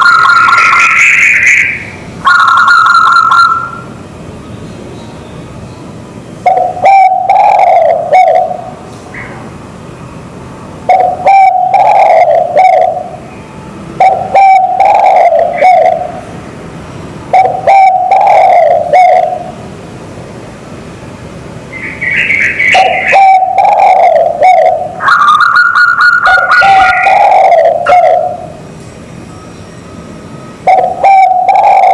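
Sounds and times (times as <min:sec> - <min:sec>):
doves cooing: 0:00.0 - 0:03.9, 0:06.4 - 0:09.4, 0:10.9 - 0:13.2, 0:14.0 - 0:16.3, 0:17.3 - 0:19.6, 0:21.7 - 0:28.6, 0:30.6 - 0:31.9.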